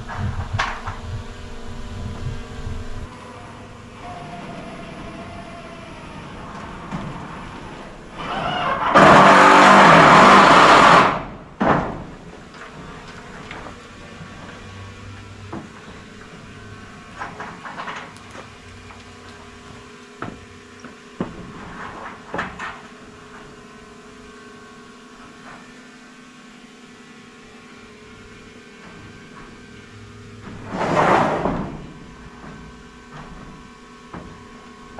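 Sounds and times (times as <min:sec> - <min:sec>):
knocks and clunks of roof panels: 0:08.9 - 0:14.6, 0:30.4 - 0:34.5.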